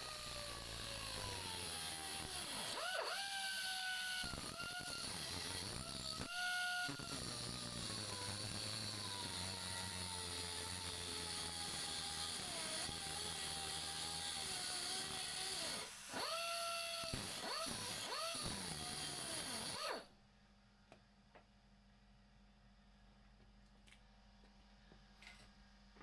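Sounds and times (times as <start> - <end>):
cordless power tool whining: 0.0 - 20.1.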